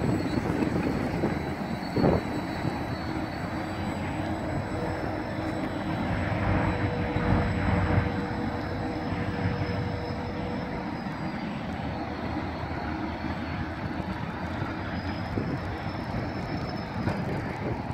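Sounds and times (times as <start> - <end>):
faint wavering high tone: 0.0 - 17.9
train rumbling on track: 0.0 - 17.9.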